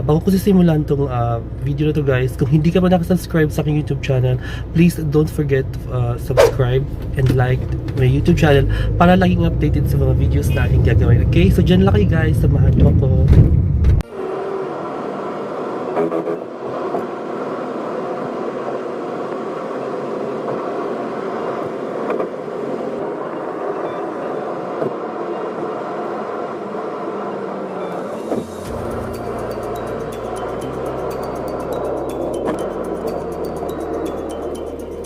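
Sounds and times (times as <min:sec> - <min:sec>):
car road and engine noise: 0:00.0 - 0:35.0
low musical bass line: 0:28.4 - 0:35.0.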